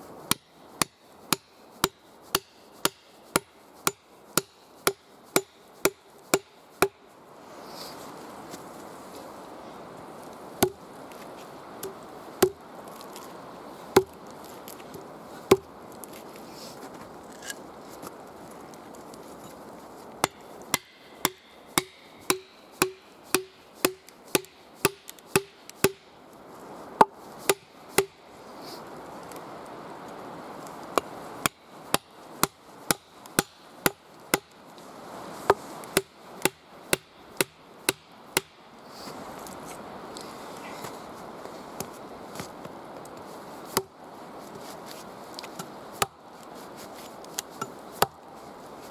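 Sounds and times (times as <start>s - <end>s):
tool striking wood: 0.3s - 7.0s, 10.6s - 10.8s, 11.8s - 12.6s, 14.0s - 14.2s, 20.2s - 26.1s, 27.0s - 28.2s, 31.0s - 34.6s, 35.5s - 38.6s.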